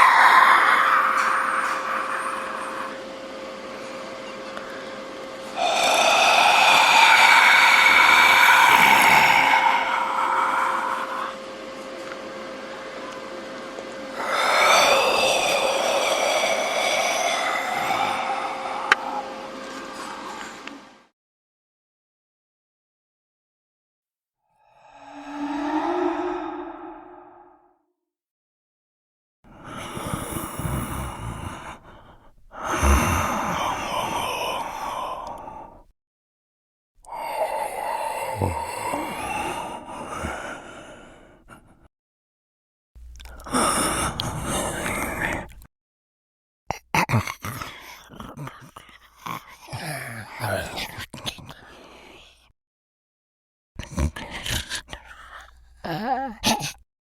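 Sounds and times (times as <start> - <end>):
raspy breathy exhalations: 0.0 - 3.2, 5.6 - 11.5, 14.2 - 20.4, 29.5 - 35.9, 37.0 - 41.9, 43.2 - 45.7
faint steady hum: 0.0 - 21.1, 29.5 - 35.9
wavering drifting synth tone: 25.0 - 27.7.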